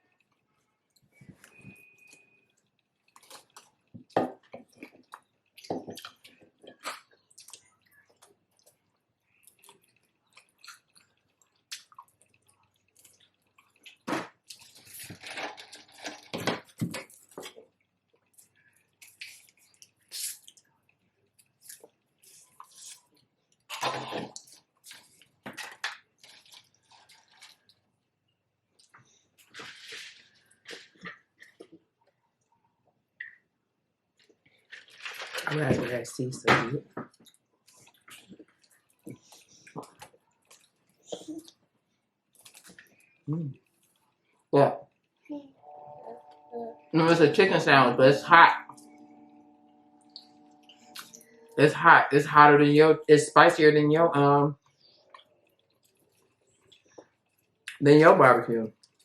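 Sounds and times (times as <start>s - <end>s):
person chewing and smacking: 0.0s - 28.0s, 37.0s - 45.3s, 50.0s - 51.6s, 54.6s - 57.8s, 58.7s - 59.0s.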